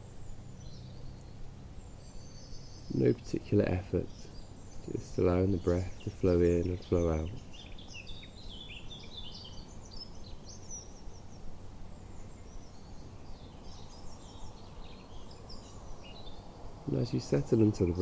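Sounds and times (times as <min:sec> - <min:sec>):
low outdoor background noise: 0:00.0 - 0:18.0
small birds chirping: 0:00.0 - 0:18.0.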